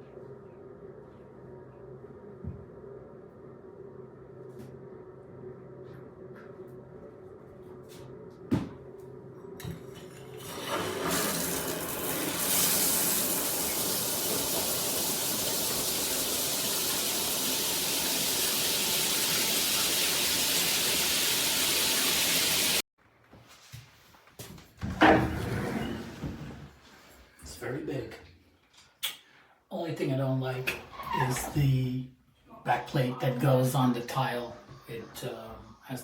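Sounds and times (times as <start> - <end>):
shower head spraying water: 10.4 - 22.8.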